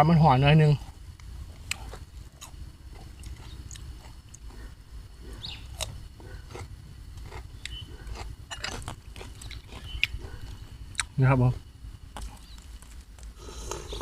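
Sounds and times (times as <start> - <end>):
low background rumble: 0.0 - 14.0
chewing and wet mouth smacks: 1.6 - 4.6.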